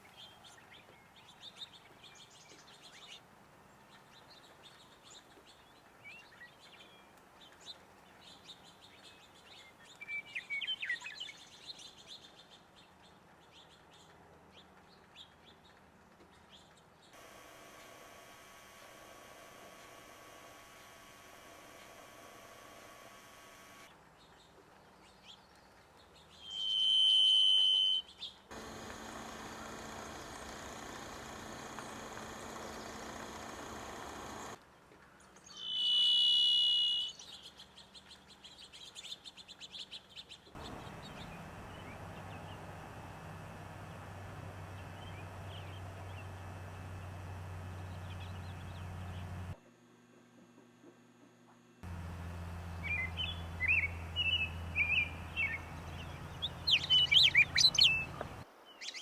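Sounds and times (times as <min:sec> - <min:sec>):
bird whistling long notes: 0:26.4 - 0:28.8, 0:35.6 - 0:37.2, 0:40.6 - 0:49.4, 0:51.9 - 0:59.0
background hiss: 0:40.6 - 0:49.6, 0:51.8 - 0:59.0
faint bird chirps: 0:40.6 - 0:49.6, 0:51.9 - 0:59.0.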